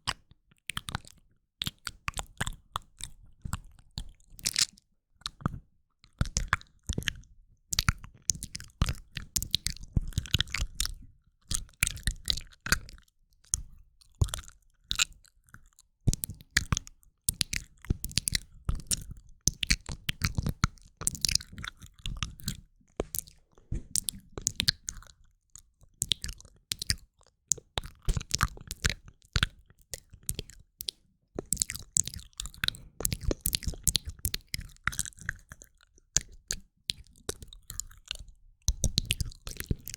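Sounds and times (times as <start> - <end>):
wet mouth clicks and smacks: 0.1 - 5.6, 15.7 - 39.9.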